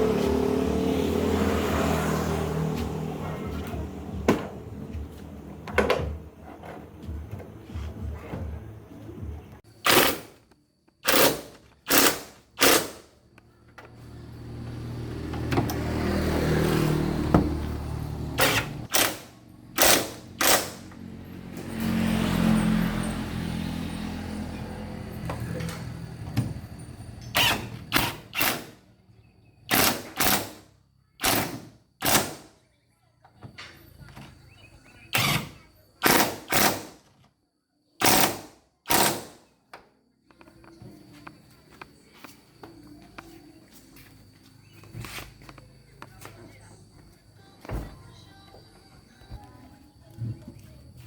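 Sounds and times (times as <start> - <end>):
power tool bursts: 9.8 - 10.4, 11.0 - 13.0, 18.4 - 20.8, 27.3 - 28.8, 29.7 - 30.6, 35.1 - 37.0, 38.0 - 39.4.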